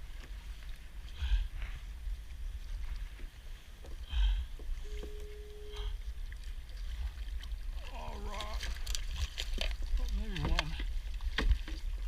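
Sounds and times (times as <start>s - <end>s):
water sloshing and dripping: 0.0s - 12.0s
steady tone: 4.1s - 6.0s
water splashing: 4.2s - 12.0s.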